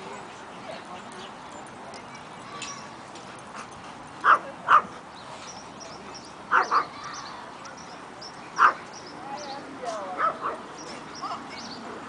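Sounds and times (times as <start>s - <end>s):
dog barking: 6.5s - 6.9s, 8.6s - 8.8s, 10.2s - 10.6s.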